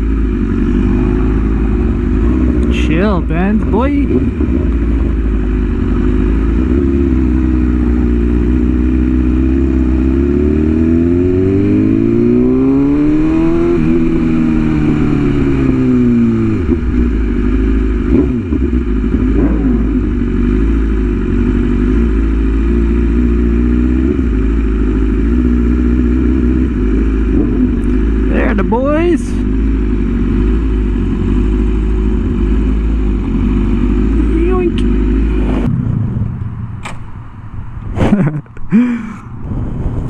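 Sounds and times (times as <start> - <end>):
motorcycle engine running: 0.0 - 39.0
wind rumble on microphone: 34.8 - 40.0.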